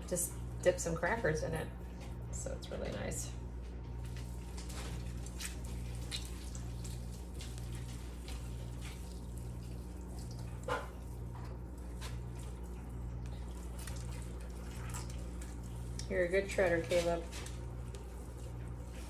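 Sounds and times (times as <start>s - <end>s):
steady low hum: 0.0s - 19.0s
wet squelches of chicken pulled apart: 4.0s - 16.1s.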